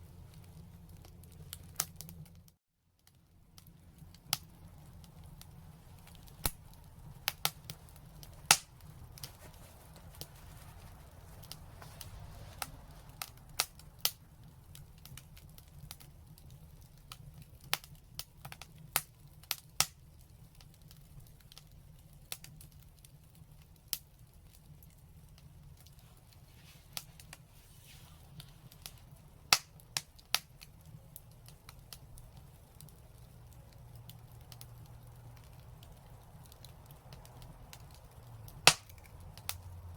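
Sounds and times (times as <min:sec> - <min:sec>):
fire crackling and popping: 0:00.0 - 0:39.9
soft hiss: 0:03.4 - 0:13.8, 0:25.2 - 0:36.0.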